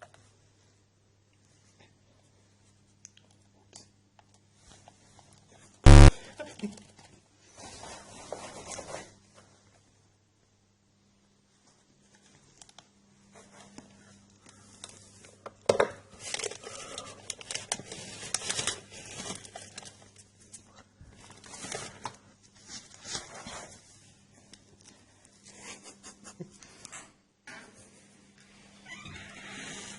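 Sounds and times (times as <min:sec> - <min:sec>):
paper or plastic crinkling: 0:16.2 - 0:20.6, 0:21.2 - 0:23.8.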